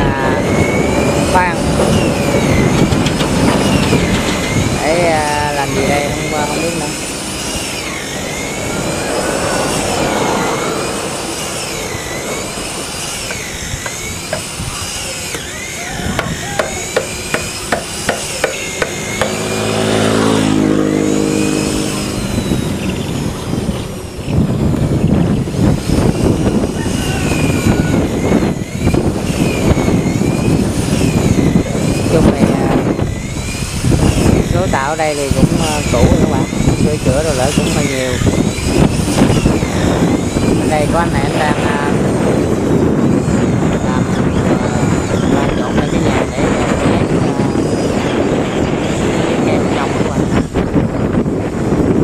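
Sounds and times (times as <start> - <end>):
motor with falling pitch: 0.0 - 52.0
hammer blows: 0.4 - 19.7
dense rattling clatter: 1.1 - 8.1.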